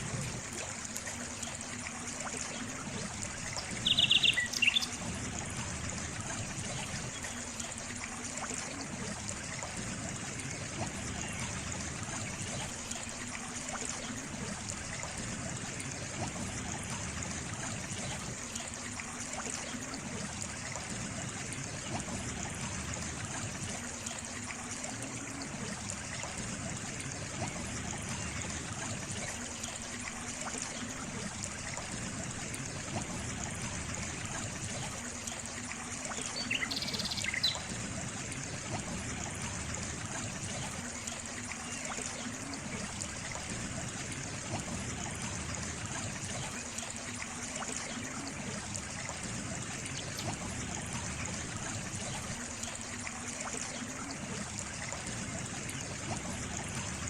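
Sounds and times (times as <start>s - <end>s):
water trickling: 0.0s - 57.0s
bird chirping: 3.8s - 5.0s, 36.4s - 37.6s.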